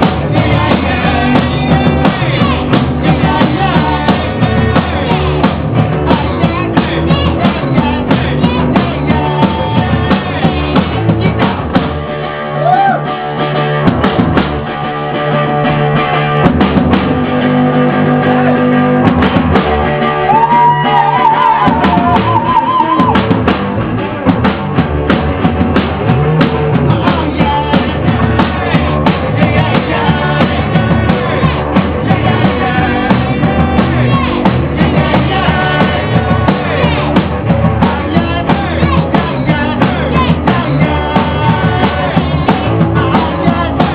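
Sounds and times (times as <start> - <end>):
rock band playing live: 0.0 - 43.9.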